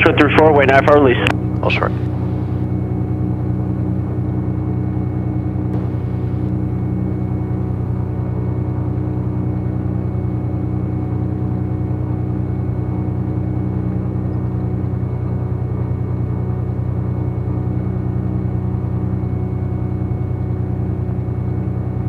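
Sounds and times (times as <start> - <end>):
plane piston engine idling: 1.5 - 2.8, 5.8 - 6.7.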